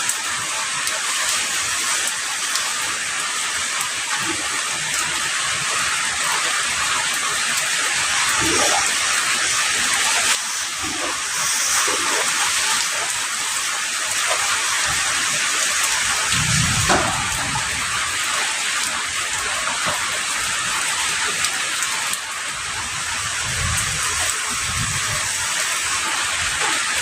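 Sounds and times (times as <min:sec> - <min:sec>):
heavy rain falling: 0:00.0 - 0:27.0
low rumble: 0:16.3 - 0:18.2.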